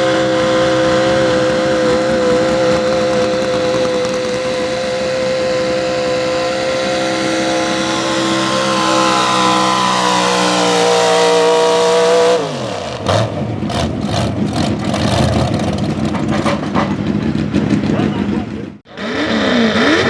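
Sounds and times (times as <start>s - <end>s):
engine pops and crackles: 0.0s - 7.6s, 13.0s - 18.7s
engine at high revs under load: 0.0s - 15.9s, 18.9s - 20.0s.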